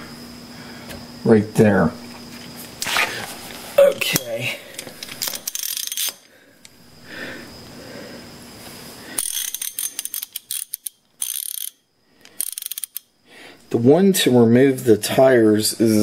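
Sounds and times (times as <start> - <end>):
tool handling: 2.8 - 6.3, 9.2 - 11.7
ratchet wrench clicking: 4.8 - 6.3, 9.2 - 13.1.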